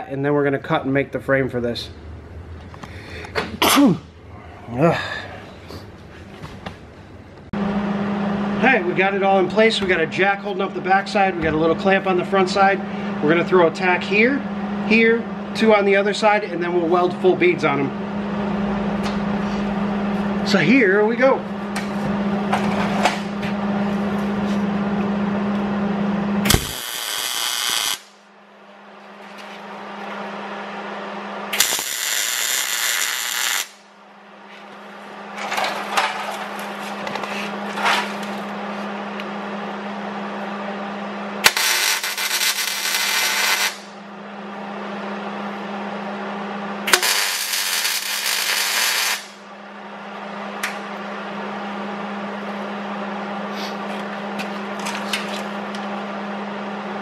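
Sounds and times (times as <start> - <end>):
steady electrical hum: 0.0 - 57.0
arc welder crackling sizzle: 26.4 - 28.3, 31.5 - 33.9, 41.4 - 44.0, 46.8 - 49.5.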